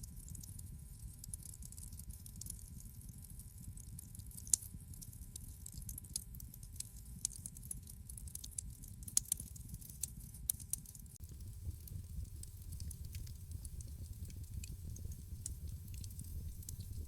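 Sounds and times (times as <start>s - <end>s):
wood fire pops and snaps: 7.2s - 9.4s, 10.5s - 17.0s
low rumble of flames: 11.2s - 17.0s.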